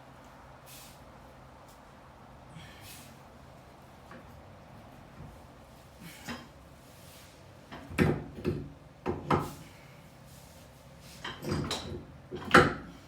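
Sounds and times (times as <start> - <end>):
metallic clunks and knocks: 7.7 - 9.5, 11.2 - 12.9.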